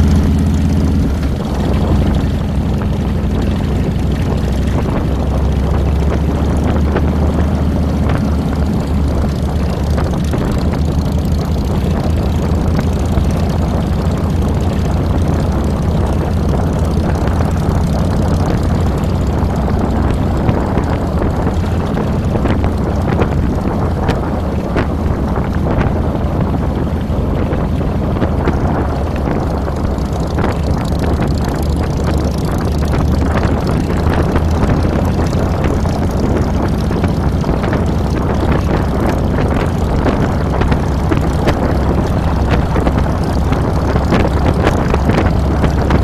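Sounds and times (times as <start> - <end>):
motorcycle engine running: 0.0 - 46.0
rushing noise: 0.0 - 46.0.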